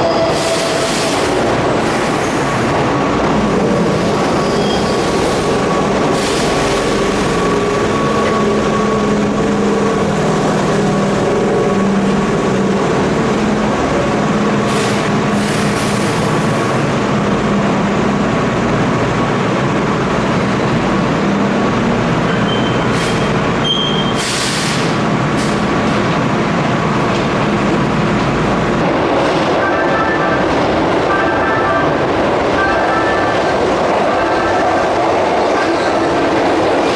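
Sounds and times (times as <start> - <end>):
electric train machinery hum: 0.0 - 24.1
air release hisses: 24.1 - 25.6.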